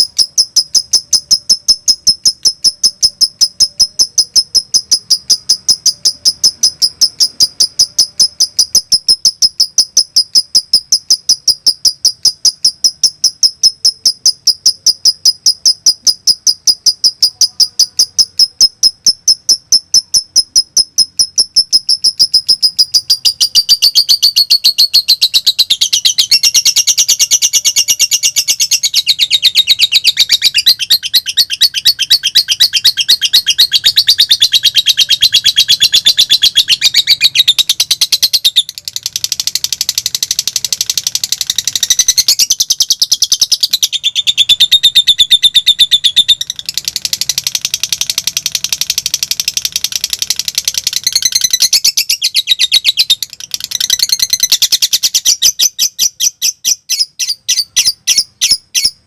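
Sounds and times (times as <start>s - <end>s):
lovebird chattering song: 0.0s - 59.0s.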